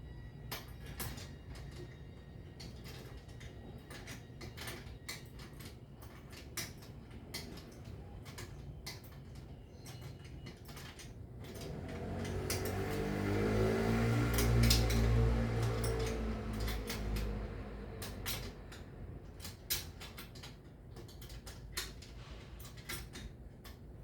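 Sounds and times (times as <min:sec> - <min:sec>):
vehicle engine approaching: 0:11.5 - 0:19.4.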